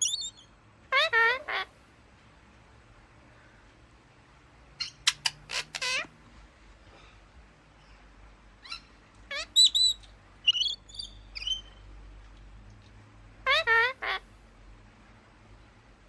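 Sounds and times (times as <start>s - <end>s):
parrots calling: 0.0s - 1.7s, 4.8s - 6.2s, 8.6s - 11.9s, 13.4s - 14.3s.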